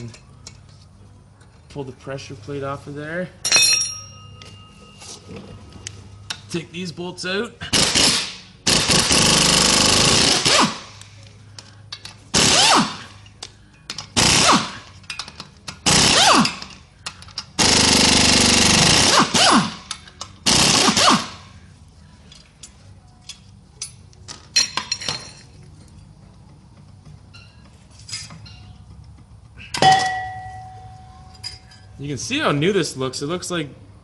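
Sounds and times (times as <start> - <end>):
impact wrench bursts: 7.7 - 11.0, 12.0 - 21.6.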